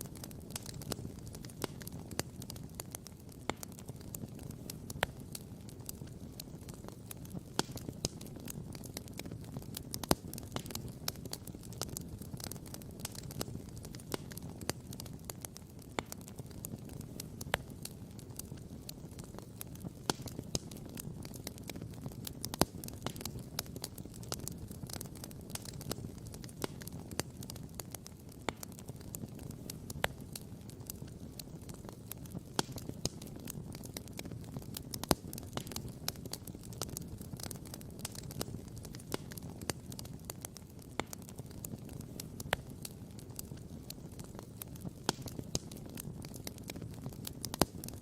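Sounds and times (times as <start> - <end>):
campfire crackling and popping: 0.0 - 48.0.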